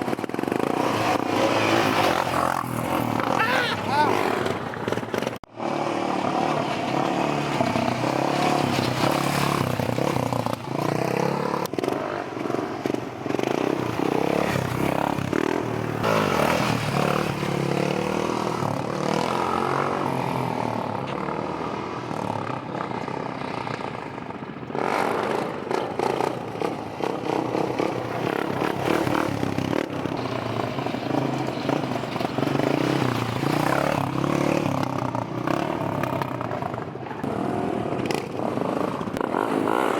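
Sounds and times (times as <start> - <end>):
motorbike engines revving: 0.0 - 39.9.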